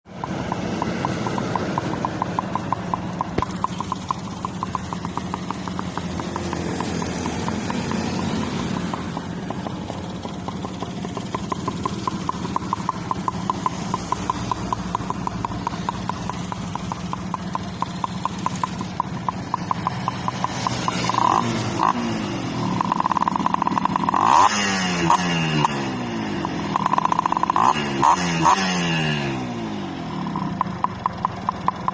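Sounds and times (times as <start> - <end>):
motorcycle engine idling: 0.0 - 31.9.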